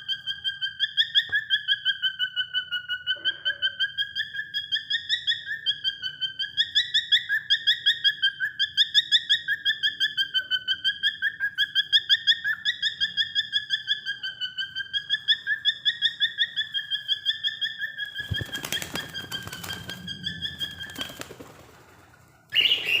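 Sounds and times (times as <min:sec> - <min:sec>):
cockatiel chirping: 0:00.0 - 0:21.3, 0:22.5 - 0:23.0
wing flapping and rustling: 0:18.2 - 0:23.0.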